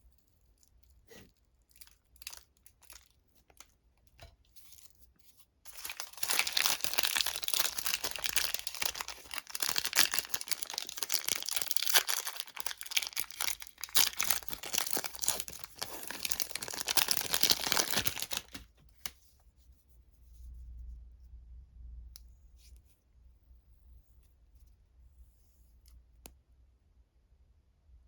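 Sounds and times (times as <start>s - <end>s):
candy wrapper tearing and crinkling: 0.5s - 3.7s, 5.7s - 19.1s.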